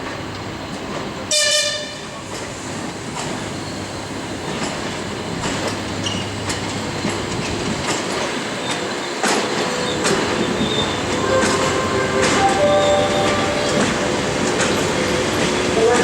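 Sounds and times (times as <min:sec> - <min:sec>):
train rumble: 0:00.0 - 0:16.0
train wheels clacking over rail joints: 0:04.4 - 0:10.8.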